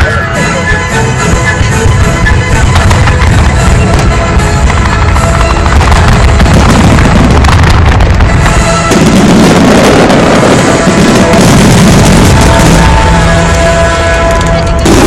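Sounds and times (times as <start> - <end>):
music from loudspeakers: 0.0 - 6.7
fireworks bursting and crackling: 0.0 - 15.0.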